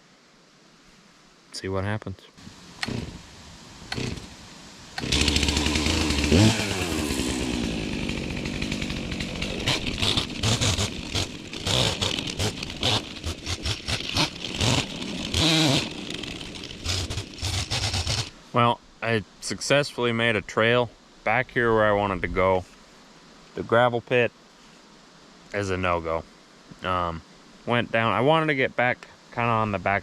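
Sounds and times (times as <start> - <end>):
chainsaw engine revving: 2.8 - 3.2, 3.9 - 4.3, 5.0 - 18.3.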